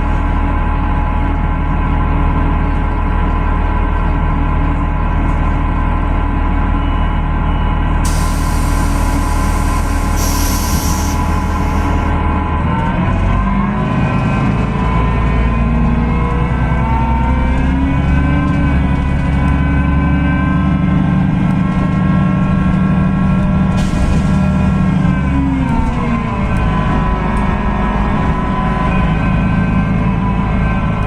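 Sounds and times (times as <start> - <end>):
bus drive whine: 3.6 - 31.0
low engine rumble: 8.0 - 13.2, 14.4 - 31.0.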